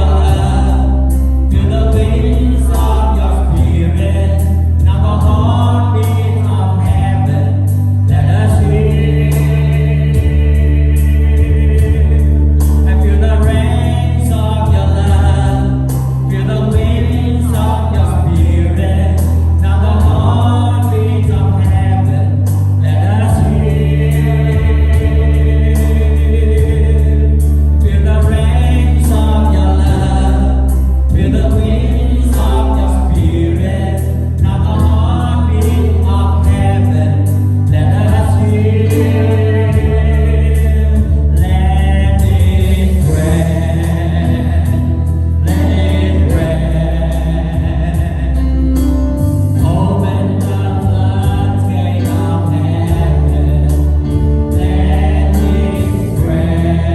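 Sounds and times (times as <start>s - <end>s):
bass and band accompaniment: 0.0s - 56.9s
choir singing: 22.8s - 48.7s, 49.6s - 56.9s.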